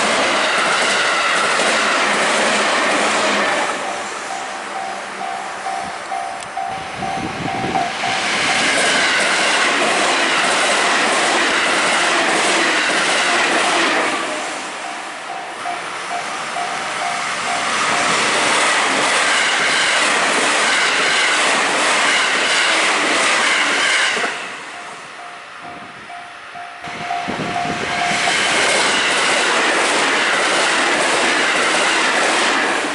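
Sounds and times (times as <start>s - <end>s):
train wheels rushing on rails: 0.0s - 32.9s
crossing warning bell dinging: 3.5s - 20.0s, 23.9s - 29.4s.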